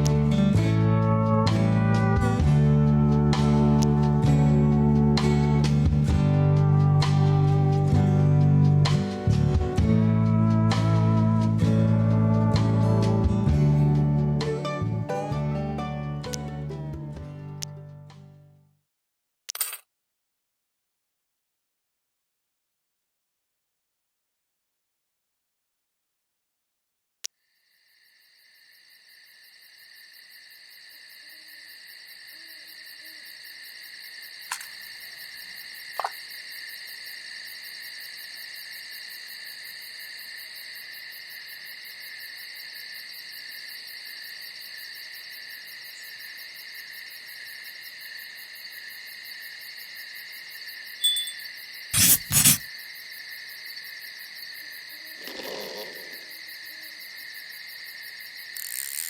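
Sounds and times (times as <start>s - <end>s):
crickets trilling: 27.4s - 59.0s.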